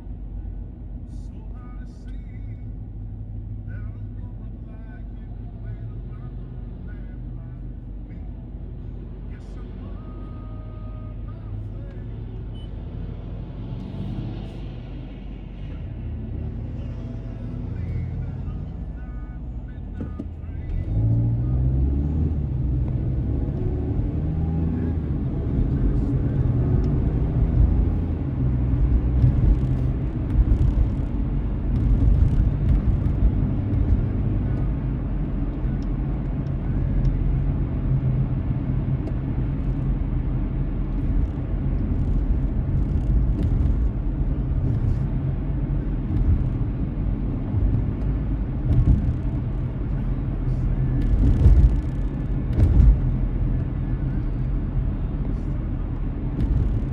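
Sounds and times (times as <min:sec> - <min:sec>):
car road and engine rumble: 0:00.0 - 0:56.9.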